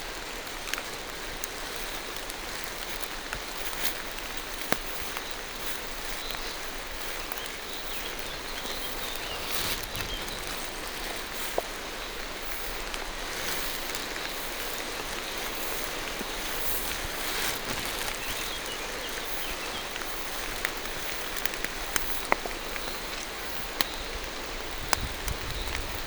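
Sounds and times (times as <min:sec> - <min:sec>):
rain hissing on leaves: 0:00.0 - 0:26.0.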